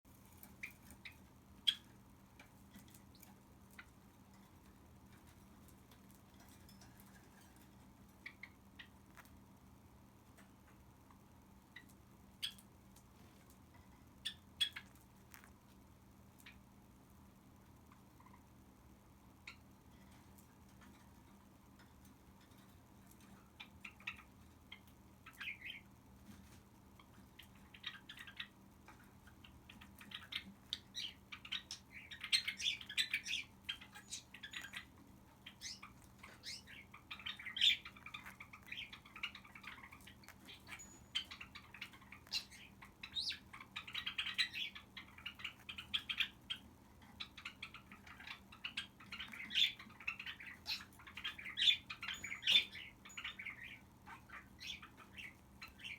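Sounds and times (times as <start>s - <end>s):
cockatiel chirping: 0.3s - 2.0s, 14.2s - 15.5s, 23.5s - 25.9s, 27.0s - 55.9s.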